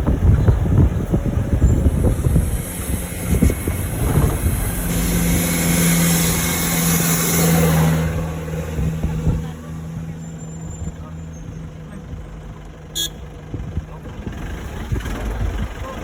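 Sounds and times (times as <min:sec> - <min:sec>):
vehicle engine humming: 0:00.0 - 0:16.0
wind buffeting microphone: 0:00.0 - 0:16.0
hiss of passing vehicle: 0:01.4 - 0:09.3.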